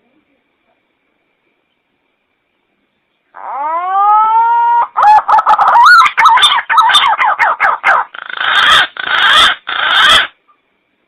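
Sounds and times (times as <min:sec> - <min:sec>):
green pigeon call: 0:03.3 - 0:10.4.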